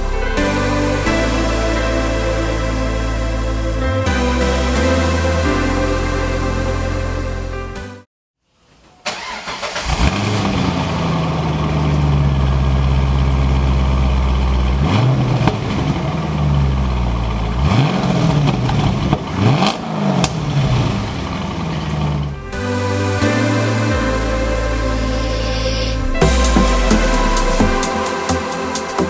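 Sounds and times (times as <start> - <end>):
engine cranking: 9.1 - 10.5
car engine idling and revving: 9.2 - 22.7, 23.9 - 28.1.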